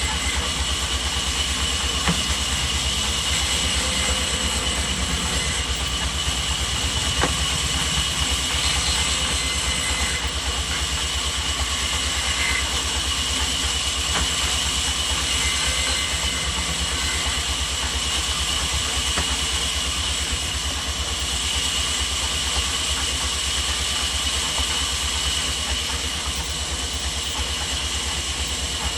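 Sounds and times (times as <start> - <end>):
high whine: 0.0 - 10.6, 14.8 - 18.9
sawmill machinery pulsing: 0.0 - 28.9.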